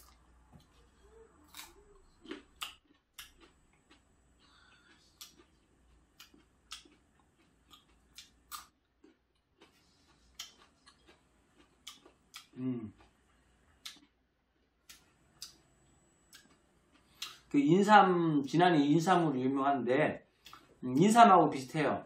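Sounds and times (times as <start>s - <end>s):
person humming: 12.6s - 13.0s.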